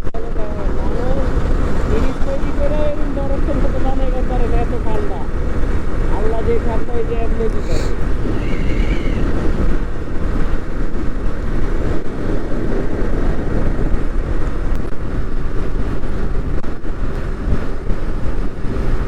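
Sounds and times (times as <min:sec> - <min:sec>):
motorcycle engine running: 0:00.0 - 0:19.0
wind rushing over microphone: 0:00.0 - 0:19.0.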